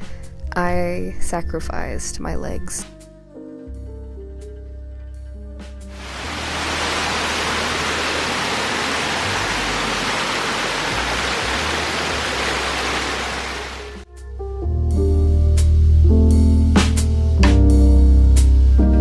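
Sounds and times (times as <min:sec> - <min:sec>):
waterfall rushing water: 0:06.0 - 0:14.0
low background music: 0:13.9 - 0:19.0.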